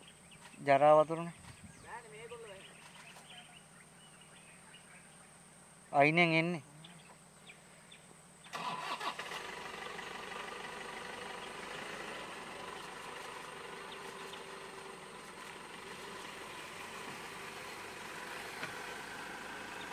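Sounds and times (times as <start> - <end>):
jeep engines idling: 8.6 - 19.9.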